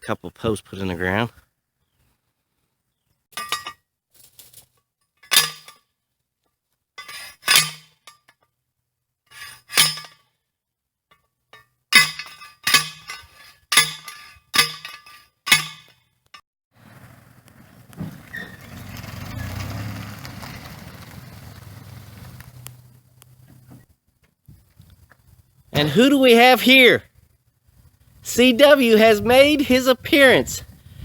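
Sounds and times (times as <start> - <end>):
ringing metal-on-metal strikes: 12.0 - 15.9.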